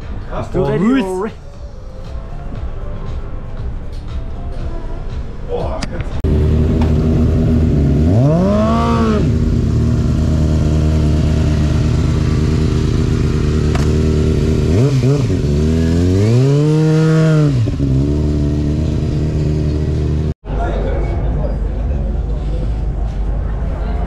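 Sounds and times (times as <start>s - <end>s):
motorcycle engine idling and revving: 6.2s - 20.4s.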